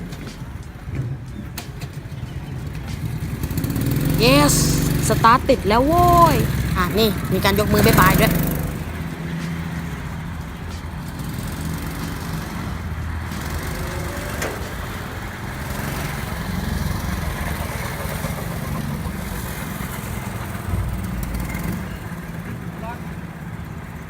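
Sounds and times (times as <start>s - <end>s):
small engine humming: 0.0s - 24.0s.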